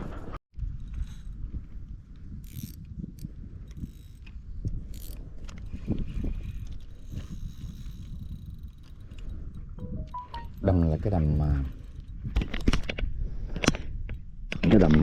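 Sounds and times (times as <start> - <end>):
fishing reel winding: 2.4 - 9.8, 11.2 - 12.4.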